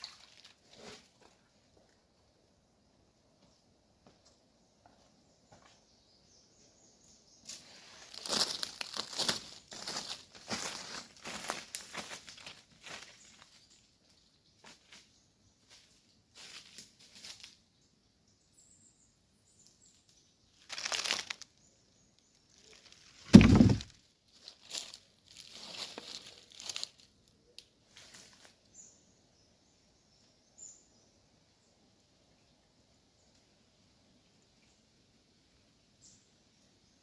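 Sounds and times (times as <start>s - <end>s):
dry leaves rustling: 7.5s - 17.6s, 20.6s - 21.6s, 22.4s - 28.6s
heavy thud: 23.3s - 23.9s.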